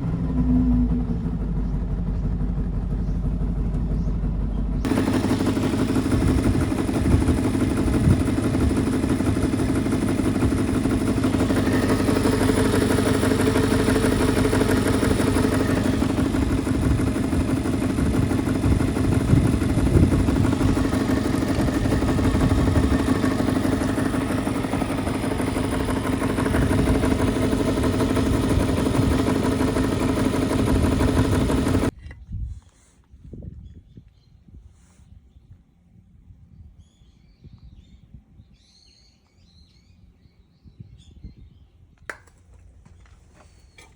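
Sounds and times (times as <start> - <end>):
two-stroke engine running: 0.0 - 32.0.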